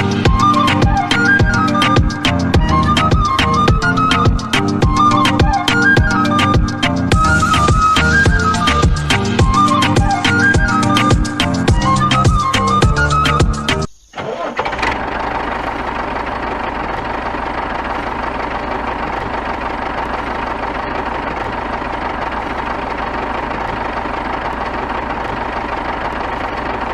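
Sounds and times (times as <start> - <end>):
background music: 0.0 - 13.9
motor running steadily: 15.0 - 26.9.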